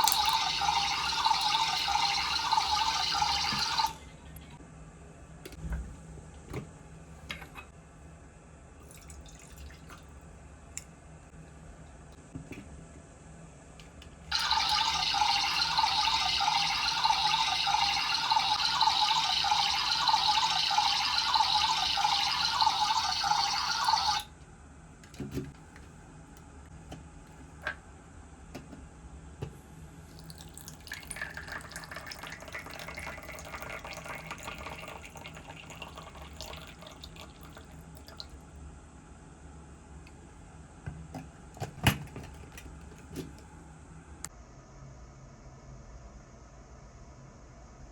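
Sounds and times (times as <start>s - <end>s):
water running: 0.0s - 4.6s, 8.8s - 10.2s, 14.3s - 24.3s, 30.1s - 38.4s.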